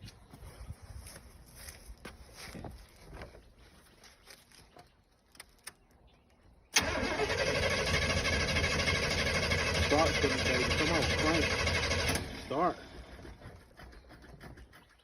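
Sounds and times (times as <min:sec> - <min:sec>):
car starter motor cranking: 0:06.8 - 0:13.7.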